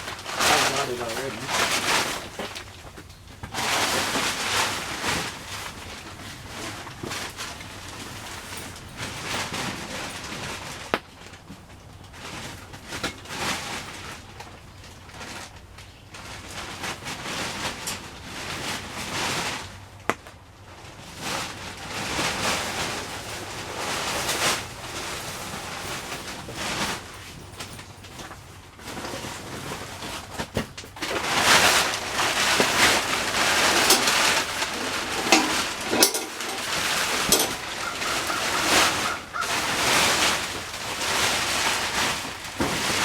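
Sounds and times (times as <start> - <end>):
plastic tarp rustling: 0.0 - 43.0.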